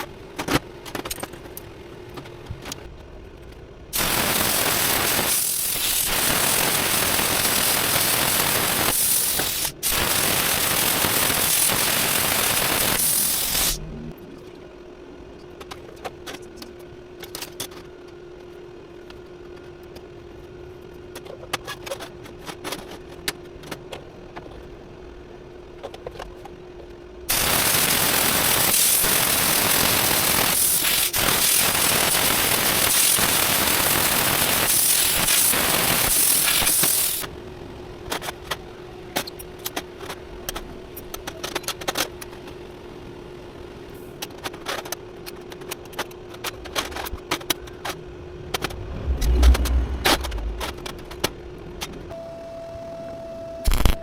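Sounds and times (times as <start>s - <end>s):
shop tool hissing: 4.0s - 13.8s, 34.4s - 37.3s
steady hum: 11.5s - 15.2s, 46.4s - 52.5s.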